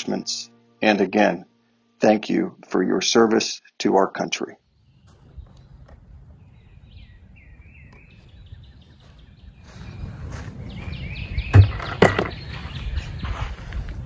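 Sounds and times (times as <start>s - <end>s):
small birds chirping: 4.6s - 14.0s
footsteps on dirt: 4.8s - 14.0s
plastic bucket thudding on dirt: 11.5s - 12.5s.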